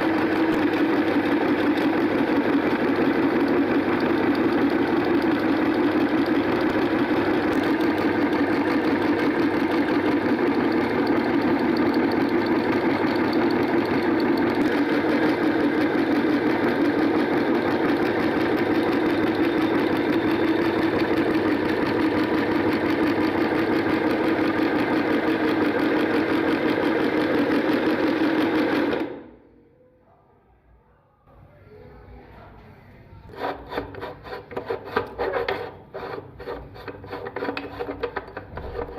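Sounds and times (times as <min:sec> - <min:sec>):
electric meat grinder running: 0:00.0 - 0:29.4, 0:33.3 - 0:38.9.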